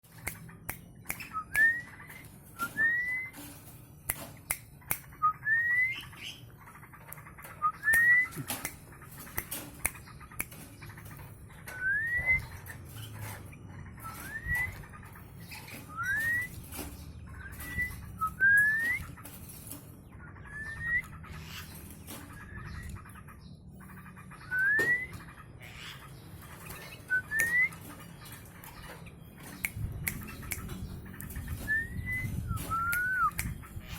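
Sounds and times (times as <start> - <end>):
sharp clicks: 0.1 - 5.3, 7.0 - 13.5, 26.6 - 33.9.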